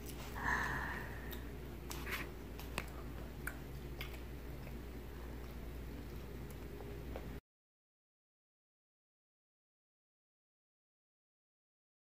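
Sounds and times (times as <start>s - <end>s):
low steady hum: 0.0s - 7.4s
toddler chewing mouth clicks: 1.2s - 4.8s.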